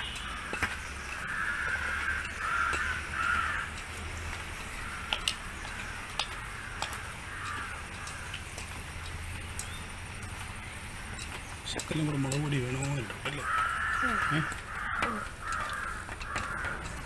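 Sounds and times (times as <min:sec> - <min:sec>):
crows cawing: 0:00.0 - 0:08.5, 0:12.0 - 0:17.0
sharp clicks: 0:00.0 - 0:17.0.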